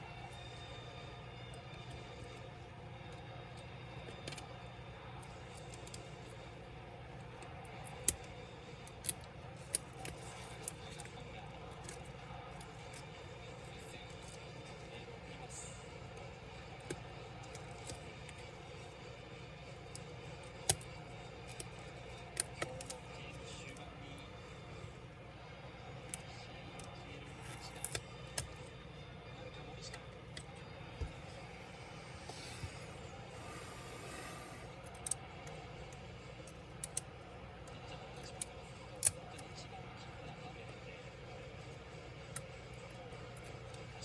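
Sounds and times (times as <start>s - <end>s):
steady low hum: 8.2s - 44.0s
clicks and taps of small parts: 19.9s - 23.0s, 27.4s - 28.6s, 34.8s - 37.1s.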